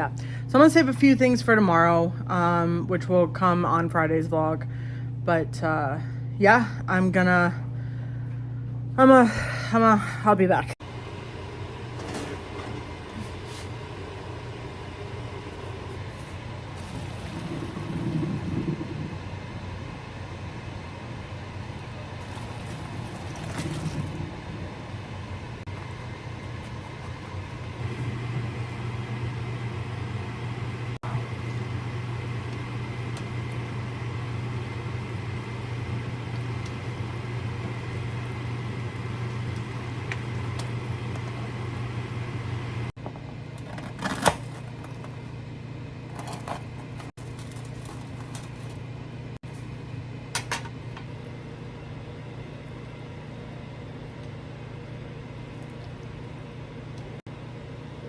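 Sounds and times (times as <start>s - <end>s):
kitchen appliance motor hum: 10.8s - 42.9s.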